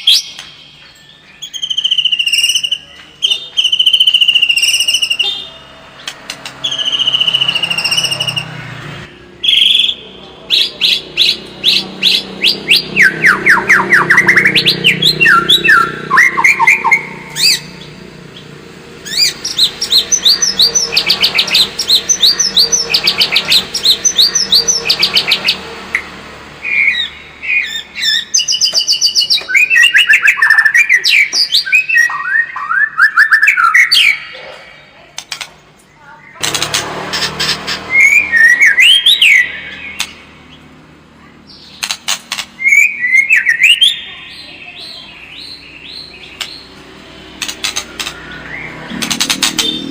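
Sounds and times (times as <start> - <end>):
bird singing varied song: 0.0 - 49.9.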